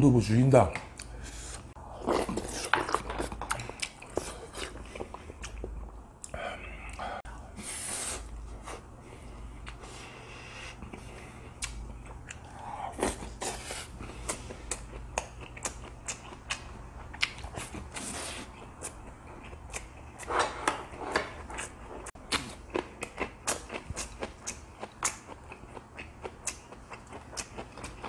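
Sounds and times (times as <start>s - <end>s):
chewing and biting food: 1.8s - 7.0s, 10.8s - 28.0s.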